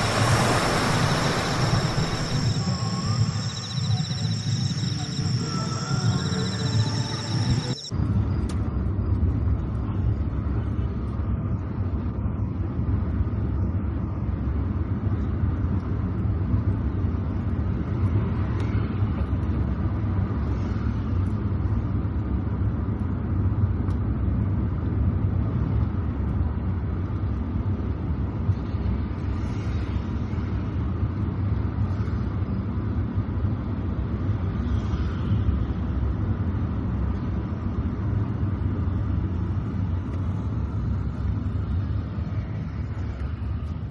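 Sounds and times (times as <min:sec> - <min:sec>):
car driving on wet road: 0:00.0 - 0:02.4.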